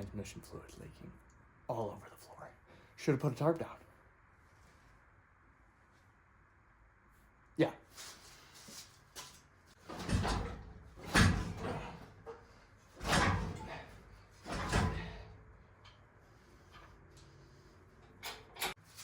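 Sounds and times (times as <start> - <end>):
heavy metal clunks: 9.8 - 15.5.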